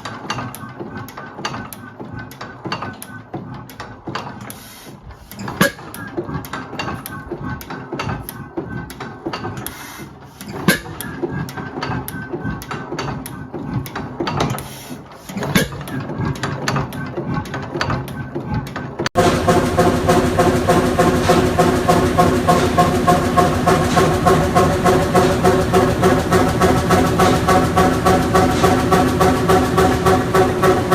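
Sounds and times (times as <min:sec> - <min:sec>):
engine mechanical clatter: 0:00.0 - 0:30.9
heavier engine knock: 0:19.1 - 0:30.9.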